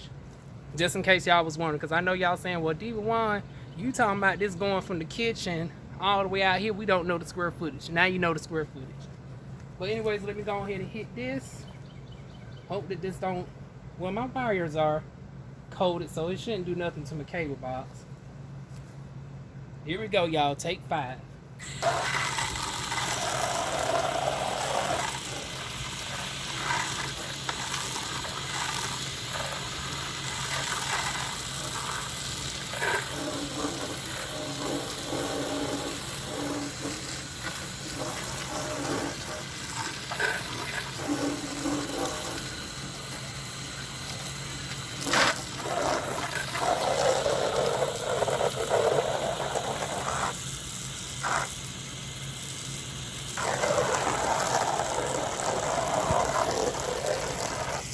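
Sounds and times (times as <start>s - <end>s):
pressure washer spraying: 21.6s - 57.9s.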